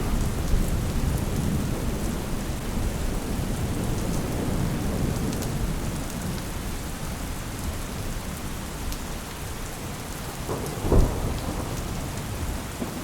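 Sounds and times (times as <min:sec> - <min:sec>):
rolling thunder rumble: 0:00.0 - 0:07.4, 0:10.2 - 0:13.0
steady rain: 0:00.0 - 0:13.0.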